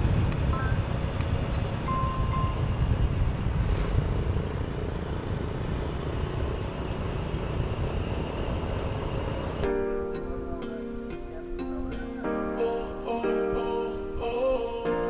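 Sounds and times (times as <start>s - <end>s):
wind rumble on microphone: 0.0s - 9.6s
road traffic: 0.0s - 9.7s.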